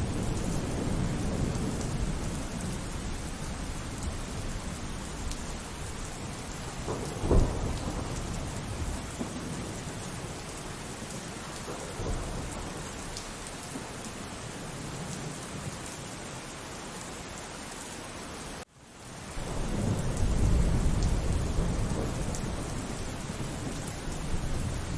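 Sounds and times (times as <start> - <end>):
rolling thunder: 0.0 - 13.2, 19.4 - 24.9
steady rain: 0.0 - 24.9.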